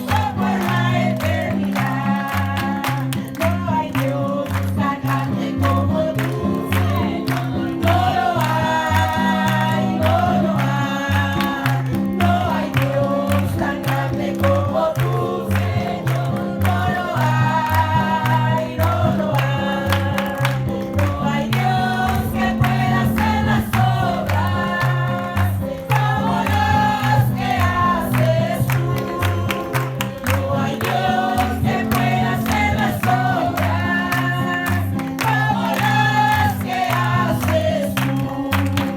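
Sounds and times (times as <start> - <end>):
group singing religious choruses: 0.0 - 38.9
instrumental backing with pulsing bass: 18.1 - 37.7.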